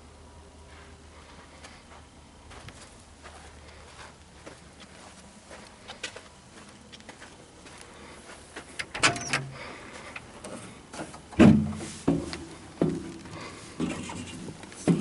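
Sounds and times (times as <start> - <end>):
knocks and clunks: 8.8 - 9.6, 10.2 - 15.0.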